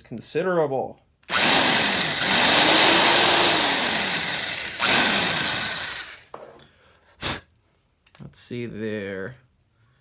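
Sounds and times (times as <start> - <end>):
electric drill boring wood: 1.3 - 6.2.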